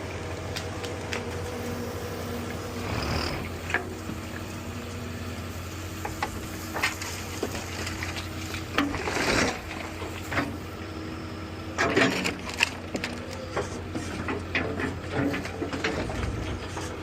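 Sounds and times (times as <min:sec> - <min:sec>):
diesel engine running: 0:00.0 - 0:17.0
debris crunch: 0:06.7 - 0:10.6
debris crackling and clicking: 0:11.8 - 0:16.8.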